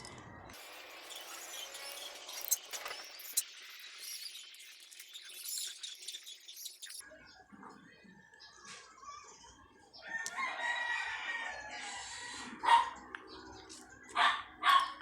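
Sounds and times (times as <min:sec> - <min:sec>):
rooster crowing: 0:10.0 - 0:12.8.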